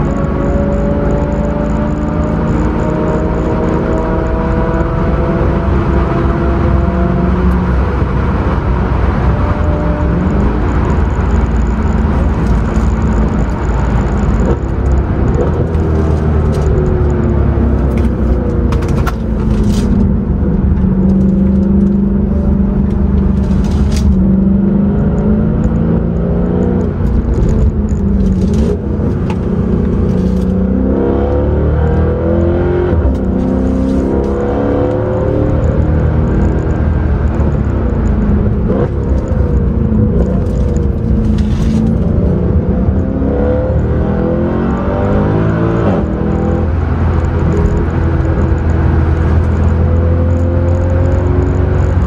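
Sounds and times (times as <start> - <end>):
car engine revving: 0.0 - 52.0
tyre and road noise: 0.0 - 52.0.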